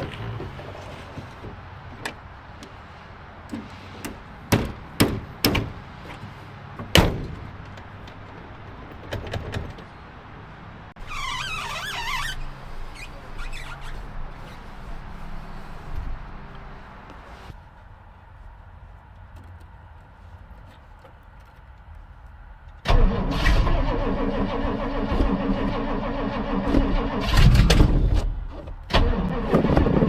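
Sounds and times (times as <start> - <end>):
sharp knocks and clanks: 3.5 - 6.2
wavering squeak: 11.0 - 14.0.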